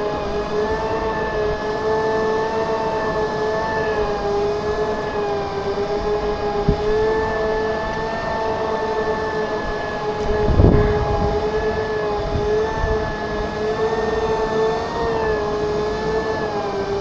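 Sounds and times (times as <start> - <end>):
electric motors whining: 0.0 - 17.0
wind rumble on microphone: 0.0 - 17.0.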